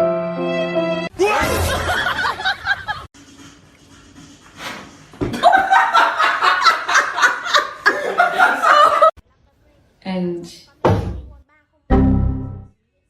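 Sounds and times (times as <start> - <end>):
people laughing: 1.4 - 3.1, 5.3 - 9.2.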